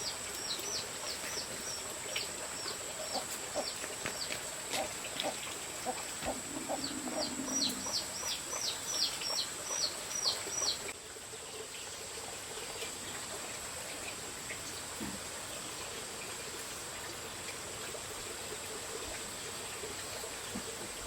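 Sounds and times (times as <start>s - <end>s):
chickens clucking: 2.6s - 10.8s
bird chirping: 5.1s - 10.9s.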